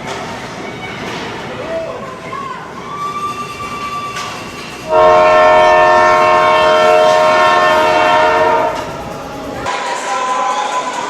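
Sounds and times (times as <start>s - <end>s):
arena horn blast: 4.9s - 9.0s.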